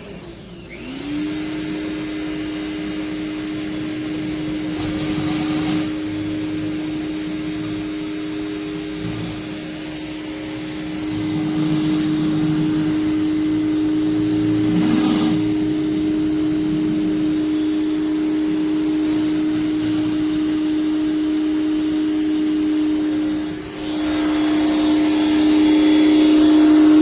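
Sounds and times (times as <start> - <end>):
pressure washer humming: 0.0 - 27.0.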